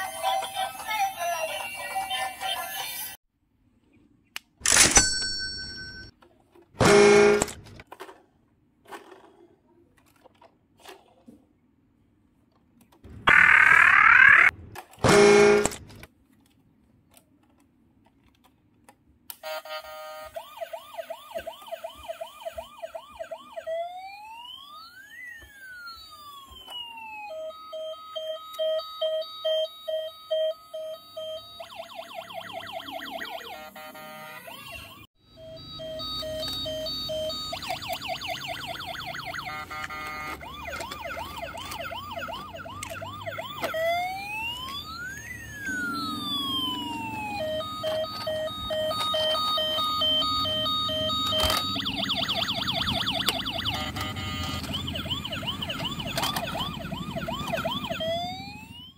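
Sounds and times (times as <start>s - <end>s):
toy siren yelps and wails: 13.3s - 14.6s, 19.4s - 58.9s
steady beeping tones: 27.4s - 40.3s, 45.0s - 55.2s.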